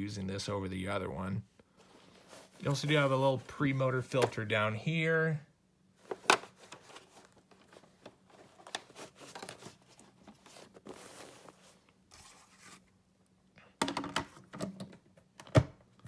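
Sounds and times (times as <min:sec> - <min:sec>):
plastic parts clicking and scraping: 0:04.0 - 0:04.5, 0:06.0 - 0:11.6.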